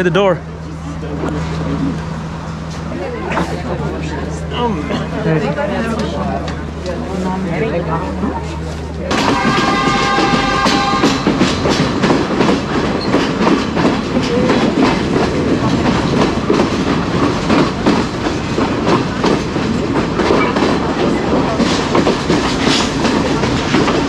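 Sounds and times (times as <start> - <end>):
train rumble: 0.0 - 24.0
wheels clacking over rail joints: 8.3 - 24.0.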